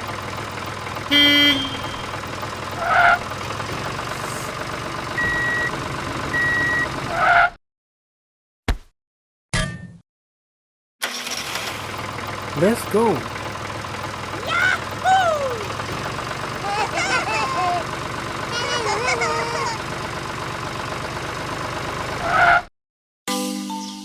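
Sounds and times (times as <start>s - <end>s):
tractor engine running: 0.0s - 7.4s, 11.0s - 22.7s
horn toot: 1.1s - 2.1s.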